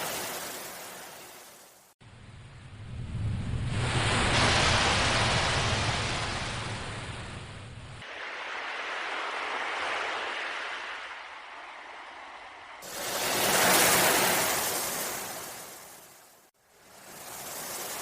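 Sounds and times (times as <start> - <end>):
ocean waves washing in: 0.0 - 18.0.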